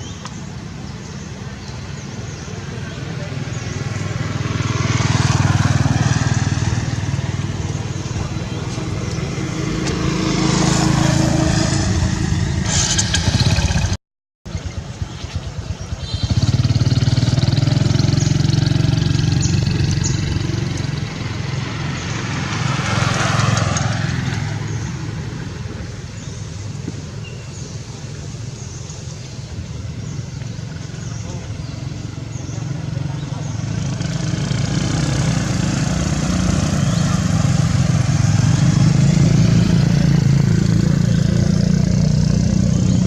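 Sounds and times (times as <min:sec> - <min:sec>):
motor vehicle engine running: 0:00.0 - 0:43.0.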